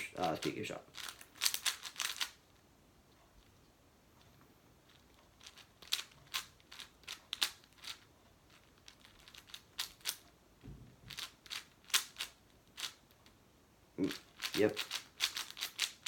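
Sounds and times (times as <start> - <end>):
speed cube clacking: 0.2 - 2.4, 4.9 - 10.2, 11.1 - 13.1, 14.1 - 16.0
dull thud: 10.6 - 11.2.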